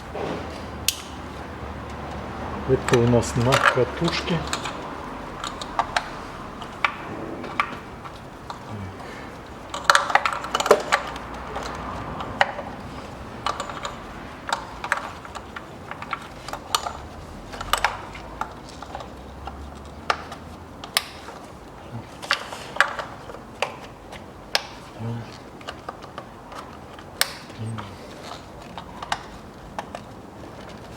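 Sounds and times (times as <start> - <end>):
plastic connectors snapping: 25.6 - 30.1.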